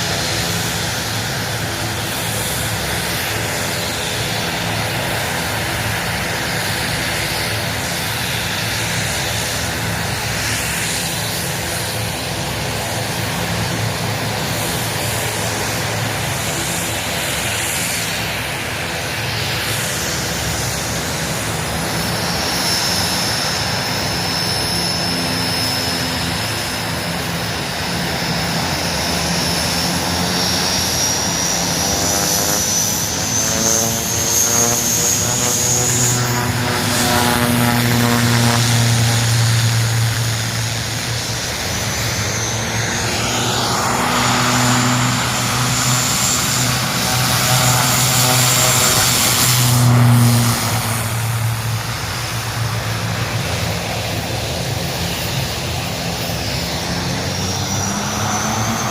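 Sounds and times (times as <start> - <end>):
aircraft engines running: 0.0 - 58.9
high whine: 20.3 - 58.9.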